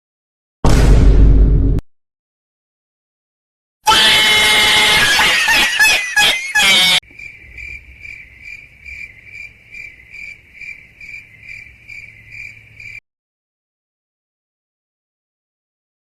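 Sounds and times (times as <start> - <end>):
cricket chirping: 7.0 - 13.0.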